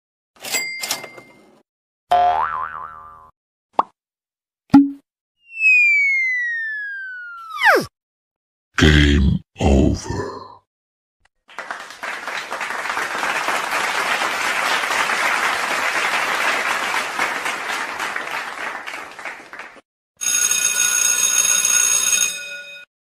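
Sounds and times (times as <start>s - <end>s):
applause: 11.4s - 19.8s.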